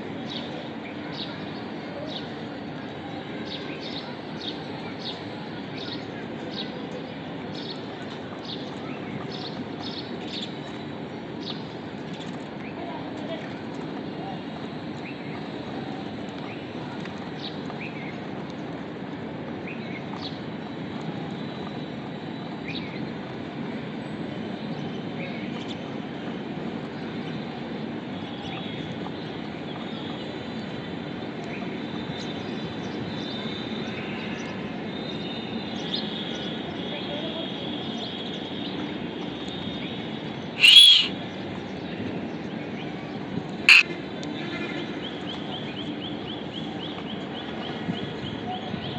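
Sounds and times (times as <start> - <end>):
faint bird chirping chatter: 40.3 - 41.2, 43.7 - 43.9
budgerigars chirping: 40.6 - 41.1.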